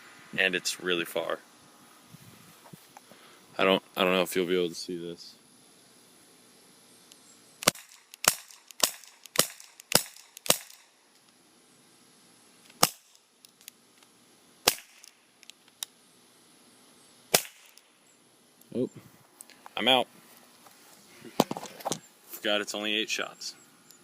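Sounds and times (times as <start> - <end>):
airsoft revolver shots: 7.6 - 11.0, 12.8 - 13.2, 14.6 - 15.2, 17.3 - 17.8.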